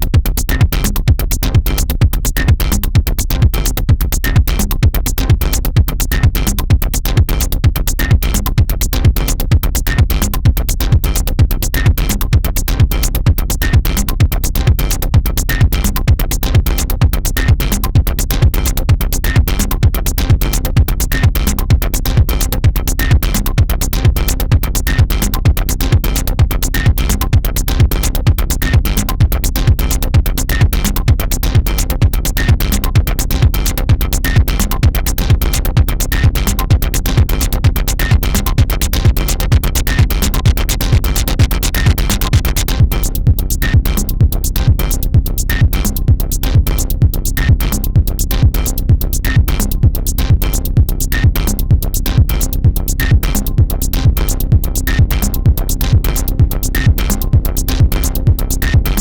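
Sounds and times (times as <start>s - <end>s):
electronic dance music: 33.9s - 42.9s.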